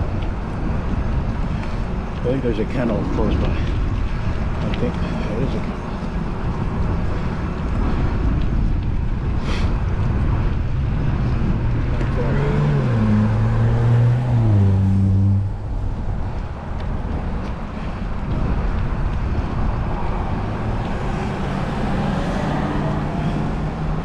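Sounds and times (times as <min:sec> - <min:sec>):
wind rushing over microphone: 0:00.0 - 0:24.0
vehicle engine shifting pitch: 0:20.2 - 0:24.0.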